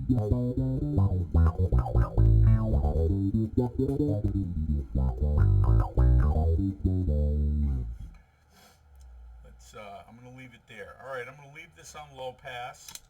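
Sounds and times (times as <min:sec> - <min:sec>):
electric bass with auto-wah tone: 0:00.0 - 0:08.2.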